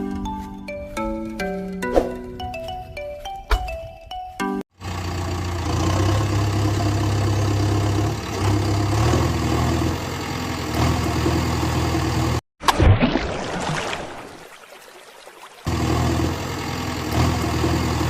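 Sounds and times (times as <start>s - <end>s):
vehicle engine idling: 4.8s - 12.4s, 15.7s - 18.0s.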